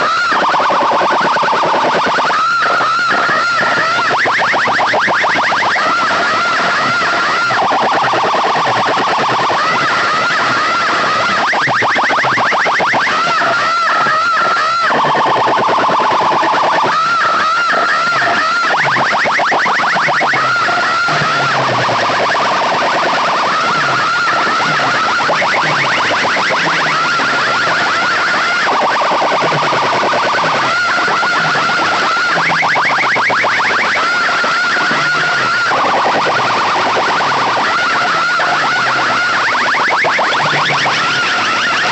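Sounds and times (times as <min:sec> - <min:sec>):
electronic siren effects: 0:00.0 - 0:41.9.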